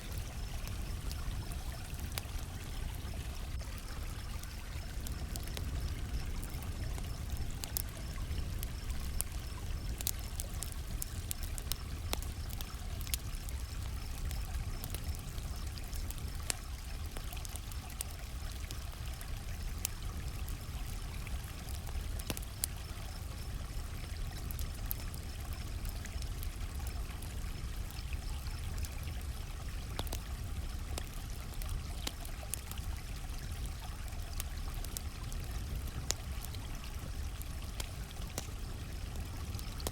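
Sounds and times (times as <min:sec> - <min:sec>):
campfire crackling and popping: 0:00.0 - 0:39.9
running creek water: 0:00.0 - 0:39.9
crickets chirping: 0:00.1 - 0:17.0, 0:21.8 - 0:29.4.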